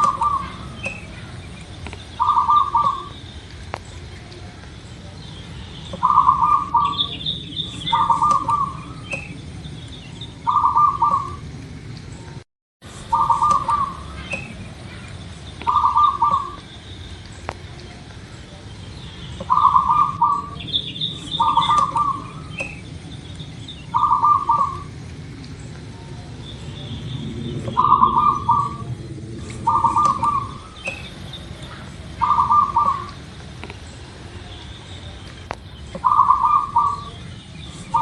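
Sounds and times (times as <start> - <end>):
dove cooing: 0.0 - 1.4, 2.2 - 3.2, 5.9 - 9.4, 10.4 - 11.5, 13.0 - 16.7, 19.4 - 22.8, 23.9 - 25.0, 27.4 - 33.2, 36.0 - 37.2.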